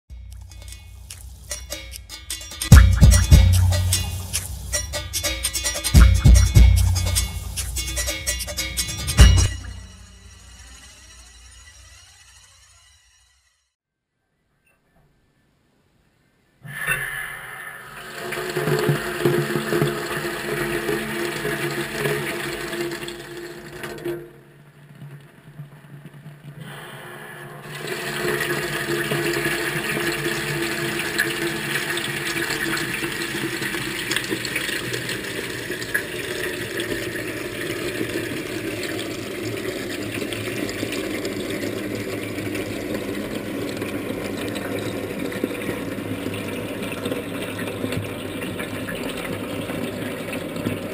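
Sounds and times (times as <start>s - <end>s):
water rushing into washing machine: 17.9s - 24.4s, 27.6s - 50.9s.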